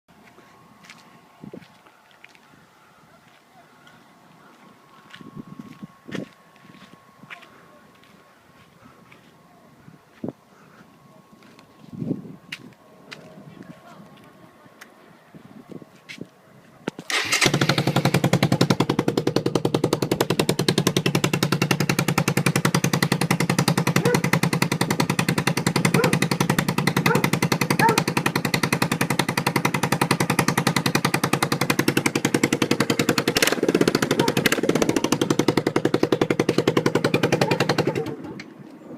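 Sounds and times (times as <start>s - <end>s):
motorcycle engine putter: 16.9s - 18.1s.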